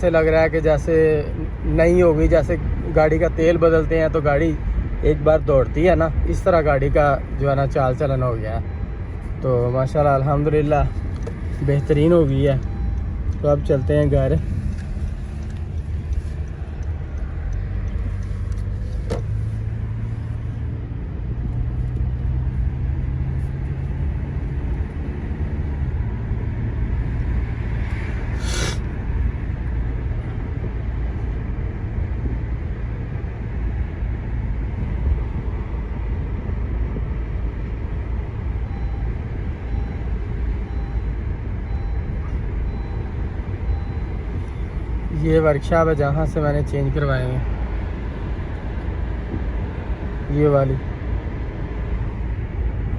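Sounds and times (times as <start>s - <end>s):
car engine and road rumble: 0.0s - 52.9s
brief hiss: 28.4s - 28.8s.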